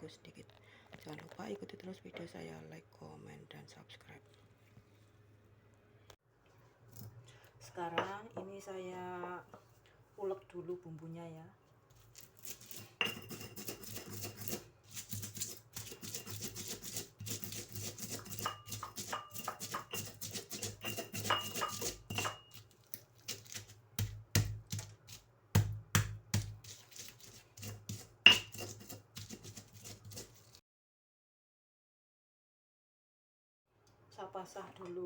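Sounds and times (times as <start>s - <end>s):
pestle grinding in mortar: 12.2s - 30.6s
pestle pounding thuds: 23.3s - 30.2s.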